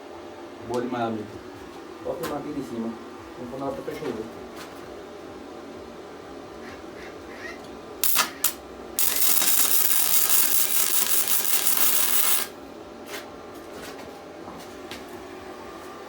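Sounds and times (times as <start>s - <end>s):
harsh noise from metal work: 8.0s - 12.5s
sharp metallic clicks: 8.0s - 12.5s.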